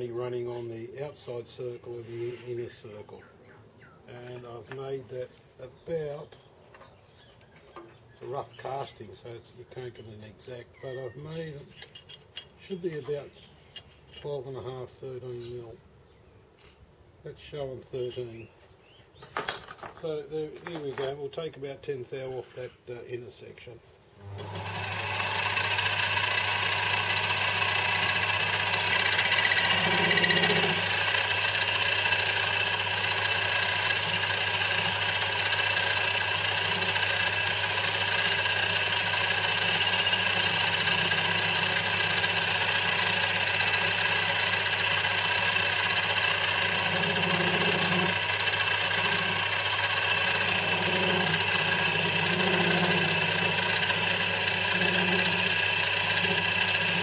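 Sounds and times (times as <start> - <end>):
metal lathe motor whining: 24.2 - 57.0
lathe cutting metal: 24.4 - 57.0.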